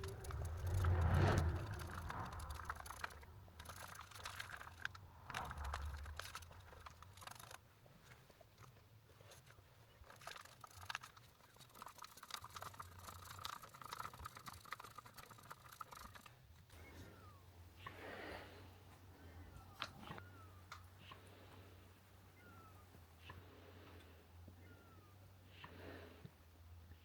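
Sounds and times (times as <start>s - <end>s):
low steady hum: 0.0s - 11.6s
faint irregular scraping: 0.0s - 16.4s
small clicks: 0.0s - 16.8s.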